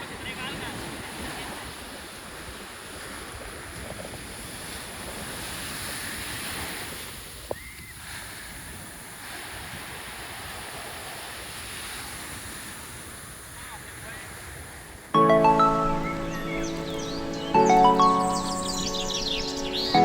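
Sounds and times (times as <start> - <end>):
wind on microphone: 0.0 - 13.1.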